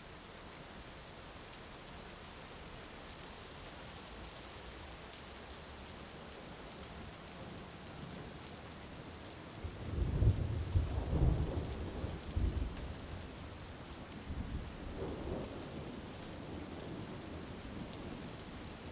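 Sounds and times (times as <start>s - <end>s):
heavy rain: 0.0s - 18.9s
rolling thunder: 9.6s - 12.9s.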